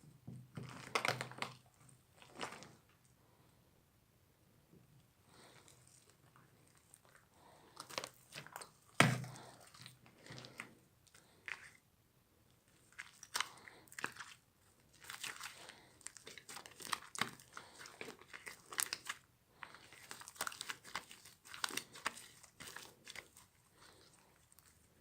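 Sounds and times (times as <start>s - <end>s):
crunchy slime being squeezed: 12.9s - 23.4s.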